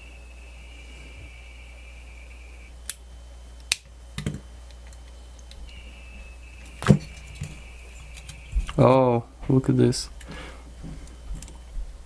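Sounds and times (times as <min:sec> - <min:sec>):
steady high whine: 0:00.0 - 0:12.0.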